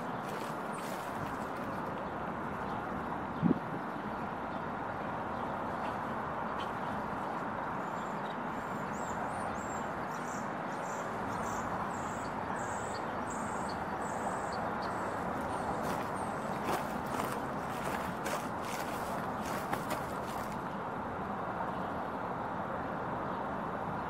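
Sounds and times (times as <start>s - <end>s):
rumbling outdoor background noise: 0.0s - 24.0s
small bird chirping: 8.0s - 20.7s.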